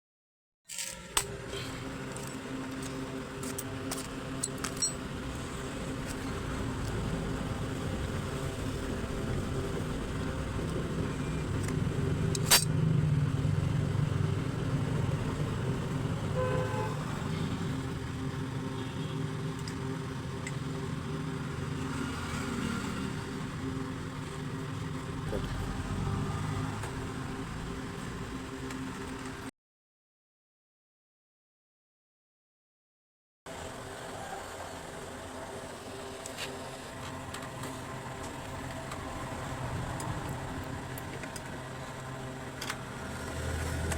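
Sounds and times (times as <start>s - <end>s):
motor traffic noise: 0.7s - 29.5s, 33.5s - 43.9s
brief horn toot: 16.3s - 17.1s.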